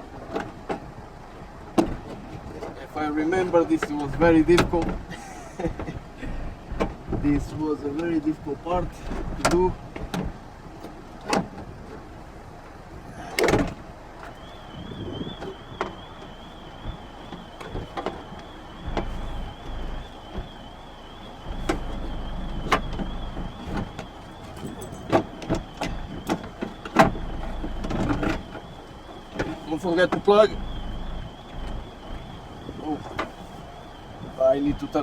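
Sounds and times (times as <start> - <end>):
wind buffeting microphone: 0.0 - 35.0
faint wavering high tone: 18.3 - 26.2, 27.0 - 35.0.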